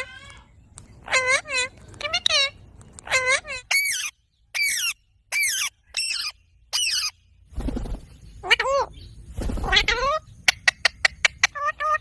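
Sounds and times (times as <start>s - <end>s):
parakeet voice-like calls: 0.0s - 7.2s, 8.4s - 9.0s, 9.6s - 12.0s
parakeet shrill calls: 1.0s - 7.2s.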